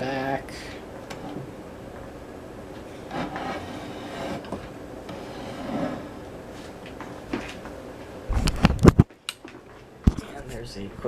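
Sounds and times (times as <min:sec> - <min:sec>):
soft rubbing and handling noise: 0:02.7 - 0:08.8.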